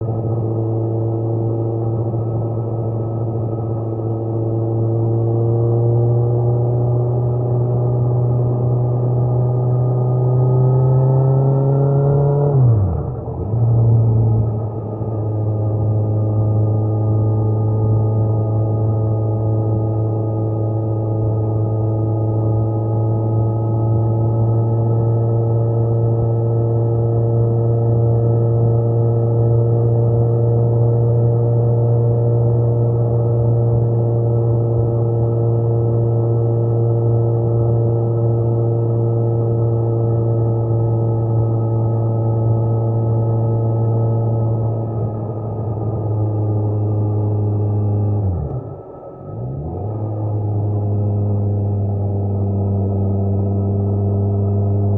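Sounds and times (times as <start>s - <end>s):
motorcycle engine droning: 0.0s - 54.9s.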